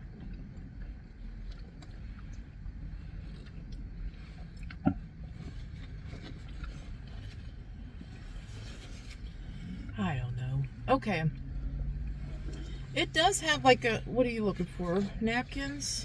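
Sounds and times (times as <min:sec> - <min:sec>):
chewing crusty bread crunches: 0:00.0 - 0:09.4
low rumble: 0:00.0 - 0:16.0.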